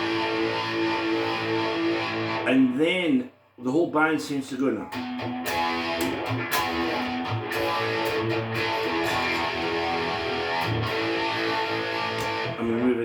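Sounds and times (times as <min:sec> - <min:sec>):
rock band playing: 0:00.0 - 0:02.4, 0:05.0 - 0:12.6.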